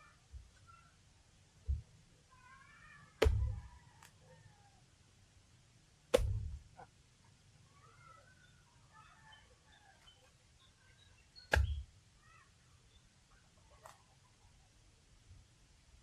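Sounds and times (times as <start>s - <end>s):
faint high animal calls: 2.3s - 4.8s, 7.6s - 10.2s, 10.8s - 12.6s
blade chopping coconut: 3.2s - 3.6s, 6.1s - 6.6s, 11.5s - 11.8s.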